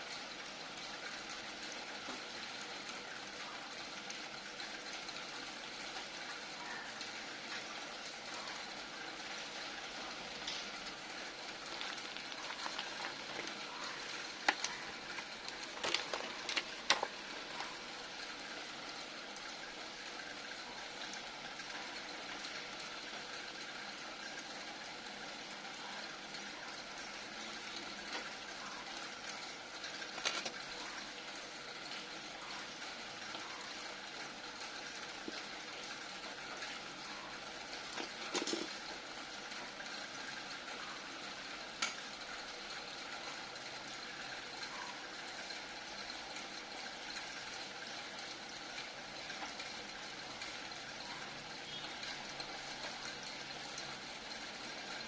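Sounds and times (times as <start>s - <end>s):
small parts clicking: 11.5s - 17.8s.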